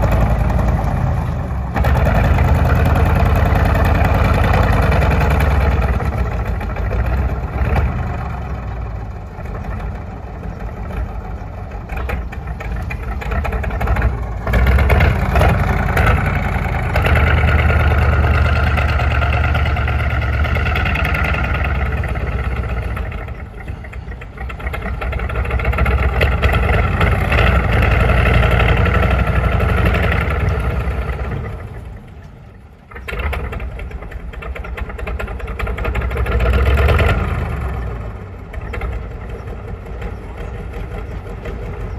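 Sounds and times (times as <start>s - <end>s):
tank diesel engine running: 0.0s - 41.9s.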